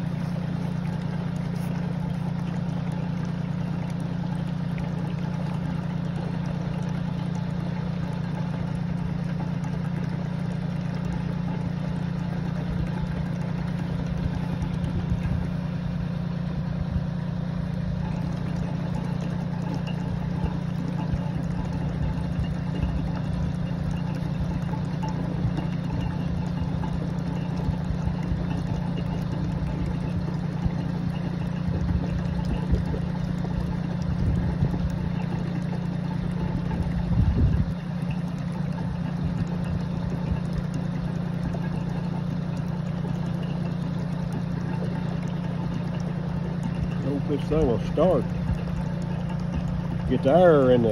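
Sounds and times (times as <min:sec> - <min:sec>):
engine droning steadily: 0:00.0 - 0:50.9.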